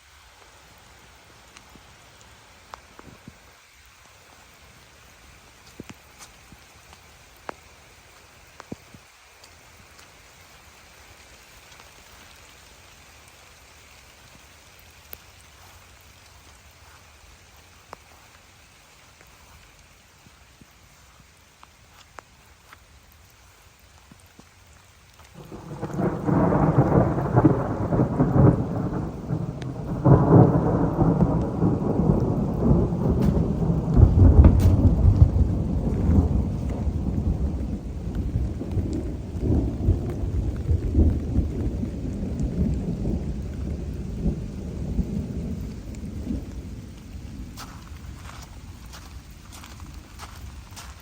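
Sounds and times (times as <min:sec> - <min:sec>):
falling rain: 0:00.0 - 0:51.0
thunder rumbling: 0:25.3 - 0:50.1.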